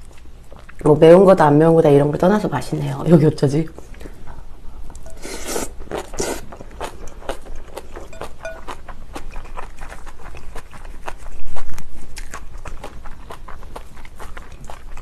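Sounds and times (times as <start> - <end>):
crunchy chewing: 0.0 - 0.9, 3.8 - 15.0
spluttering through full mouth: 5.1 - 6.5.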